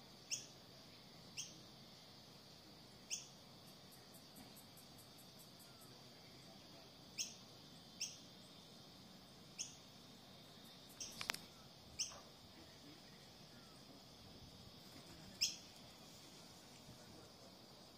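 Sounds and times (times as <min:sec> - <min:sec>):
steady high-pitched hum: 0:00.0 - 0:17.9
bird chirps: 0:00.2 - 0:01.7, 0:03.0 - 0:06.5, 0:07.1 - 0:08.6, 0:09.5 - 0:09.9, 0:10.5 - 0:12.3, 0:15.2 - 0:15.7
flurry of clicks: 0:11.0 - 0:11.5.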